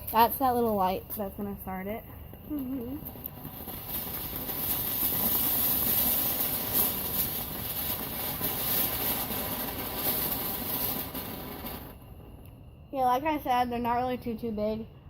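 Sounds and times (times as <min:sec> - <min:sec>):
fireworks hissing sparks: 0:00.0 - 0:14.5
faint fireworks crackles: 0:00.0 - 0:14.9.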